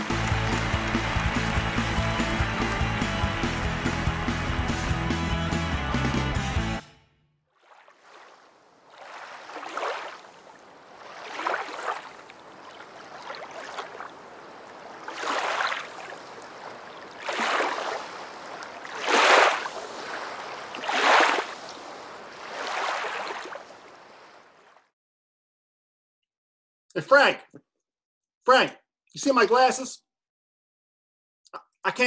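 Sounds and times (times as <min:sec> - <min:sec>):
rushing water surging: 0:00.0 - 0:05.1, 0:07.7 - 0:24.6.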